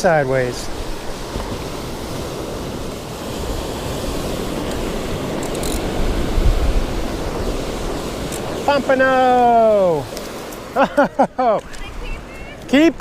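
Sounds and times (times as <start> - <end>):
ocean surf washing onto beach: 0.0 - 13.0
wind rumbling on microphone: 0.4 - 10.8.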